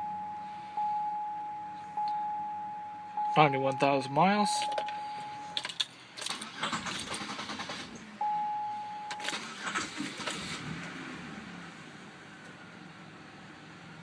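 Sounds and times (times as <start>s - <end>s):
electronic chime tone: 0.0s - 5.6s, 8.2s - 9.3s
car engine starting and idling: 0.0s - 14.0s.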